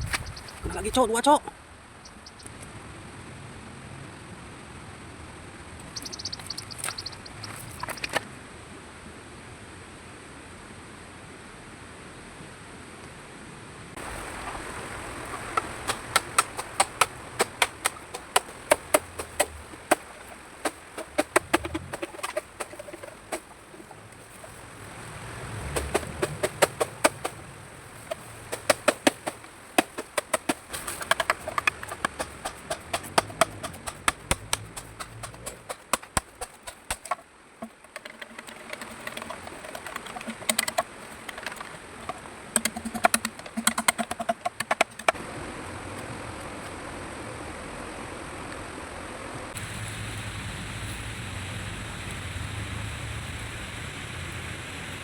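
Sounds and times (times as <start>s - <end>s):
sharp clicks and snaps: 5.8s - 8.2s.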